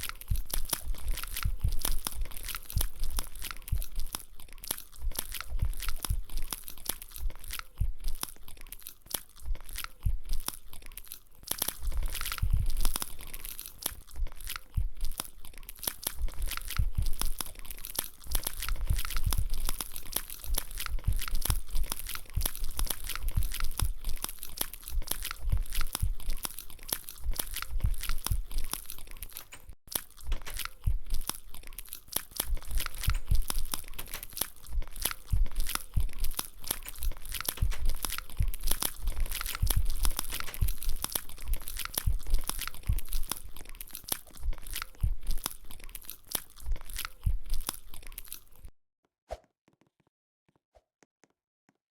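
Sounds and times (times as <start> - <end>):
chewing crunchy food: 0.0 - 48.7.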